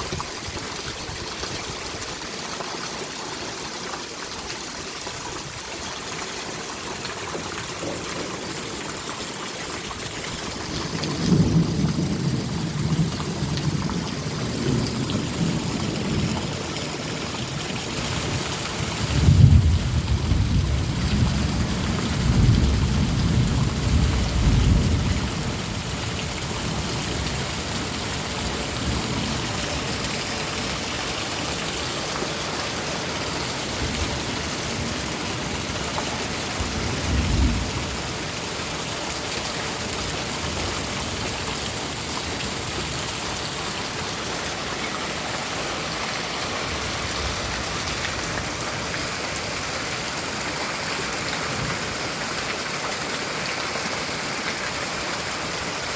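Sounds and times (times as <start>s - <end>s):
heavy rain hissing: 5.4s - 55.9s
thunder rumbling: 19.1s - 25.9s.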